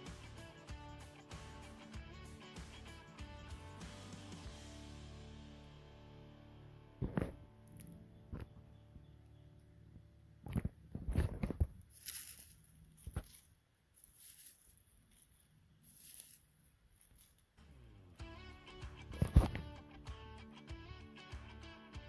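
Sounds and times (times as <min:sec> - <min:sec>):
background music: 0:00.0 - 0:08.9, 0:17.6 - 0:22.0
sharp knocks and crunches: 0:10.4 - 0:13.5.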